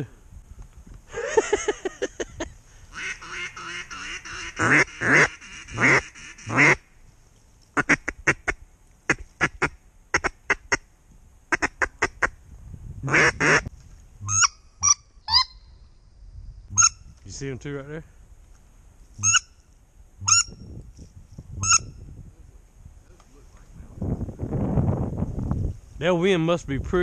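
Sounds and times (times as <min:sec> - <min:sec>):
duck quacking: 0:02.9 - 0:06.8, 0:07.8 - 0:10.8, 0:11.5 - 0:12.4, 0:13.1 - 0:15.5.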